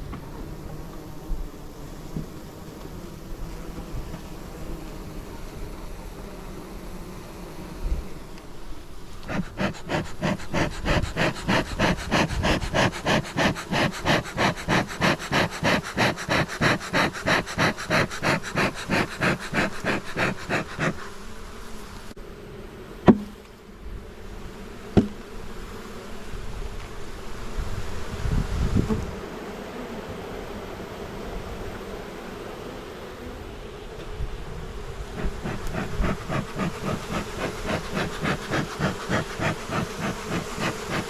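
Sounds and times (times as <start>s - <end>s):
honeybees buzzing: 0.0s - 41.0s
rapid even whooshing: 9.2s - 21.1s, 35.1s - 41.0s.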